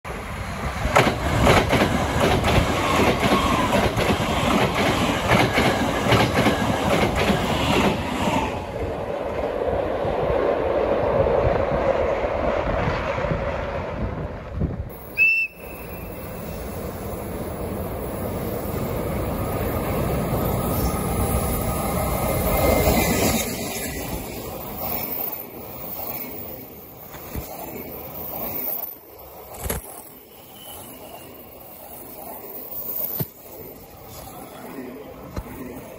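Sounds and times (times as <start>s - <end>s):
approaching freight train rumble: 0.1s - 35.9s
electric train passing: 0.1s - 35.9s
train wheels clicking over rail joints: 0.8s - 8.2s.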